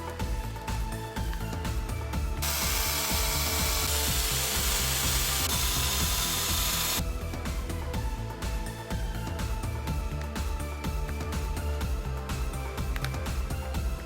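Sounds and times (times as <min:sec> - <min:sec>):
background music: 0:00.0 - 0:14.0
hissing tool: 0:02.4 - 0:07.0.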